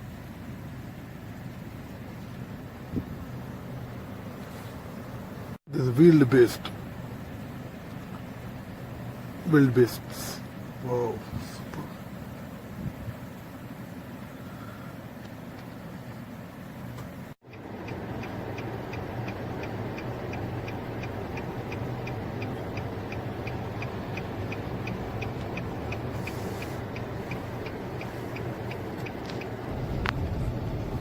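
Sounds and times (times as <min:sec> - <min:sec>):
car engine humming: 0:00.0 - 0:31.0
indicator relay clicking: 0:18.2 - 0:26.1.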